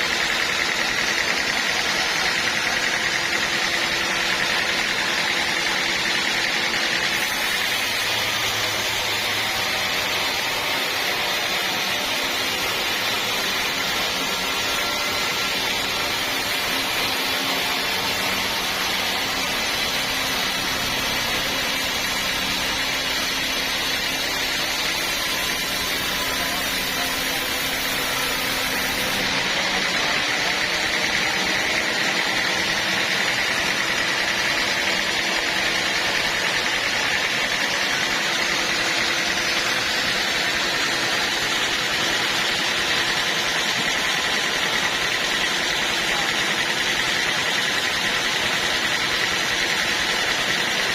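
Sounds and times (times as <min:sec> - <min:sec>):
sawmill engine and blade running: 0:00.0 - 0:50.9.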